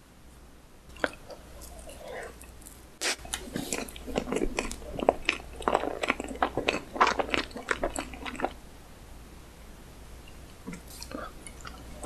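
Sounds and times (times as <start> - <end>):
person chewing cake: 0.9 - 8.6, 10.3 - 12.0.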